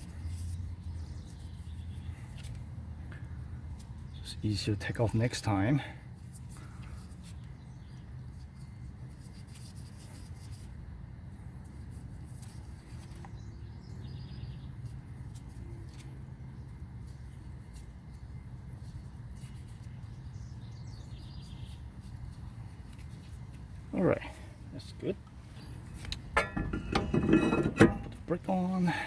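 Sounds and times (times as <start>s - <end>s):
low background rumble: 23.4s - 29.0s.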